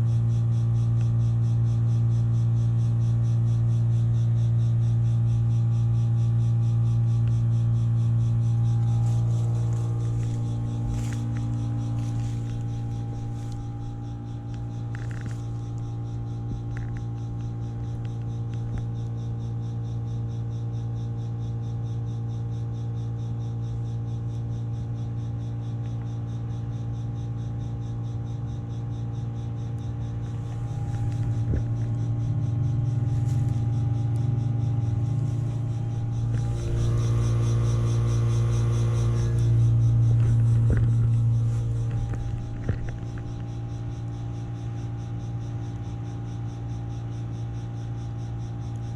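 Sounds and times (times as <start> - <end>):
heat pump compressor hum: 6.8 - 19.0, 30.1 - 45.7
constant tones: 7.3 - 19.0, 29.8 - 47.8.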